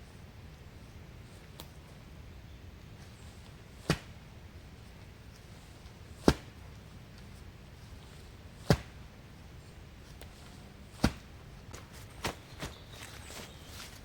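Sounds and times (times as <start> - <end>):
low steady background noise: 0.0 - 14.0
axe chopping wood: 6.2 - 6.6, 8.6 - 9.0, 10.9 - 11.3.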